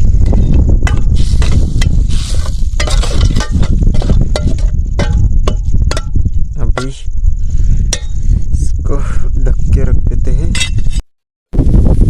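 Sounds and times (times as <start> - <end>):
steady low rumble: 0.0 - 11.0
metal utensil scraping a pot: 0.2 - 6.2, 7.9 - 8.3.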